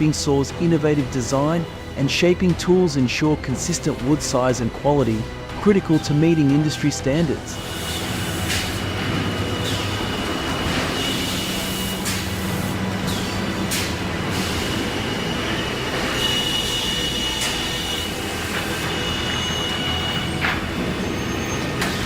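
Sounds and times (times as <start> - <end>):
woodworking saw running: 3.4 - 22.0
saw squeals: 7.5 - 12.2, 13.0 - 22.0.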